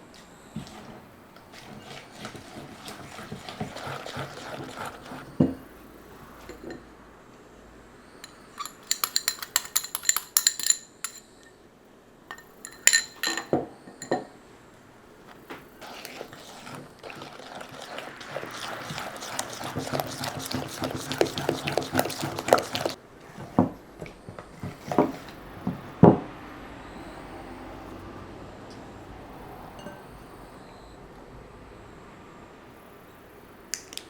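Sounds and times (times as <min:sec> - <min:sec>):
metal and glass clinking: 0:08.2 - 0:11.6, 0:12.3 - 0:14.3, 0:29.8 - 0:30.2.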